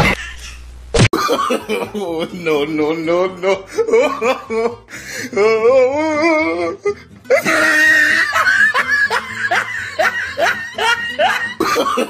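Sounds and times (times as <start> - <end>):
music: 2.2 - 12.0
laughter-like voice calls: 5.4 - 12.0.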